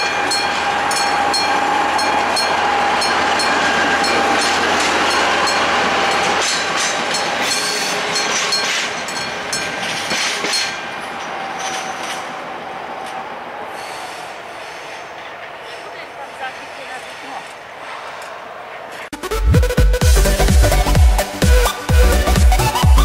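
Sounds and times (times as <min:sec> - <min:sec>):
train wheels clacking on rail joints: 0:00.0 - 0:12.4
crossing warning bell ringing: 0:00.0 - 0:13.2
diesel railcar engine running: 0:00.0 - 0:19.1.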